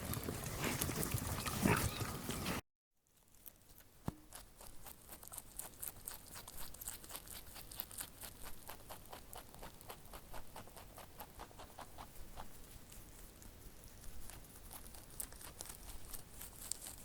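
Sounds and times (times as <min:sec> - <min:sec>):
crunching of dry food: 0:03.1 - 0:17.0.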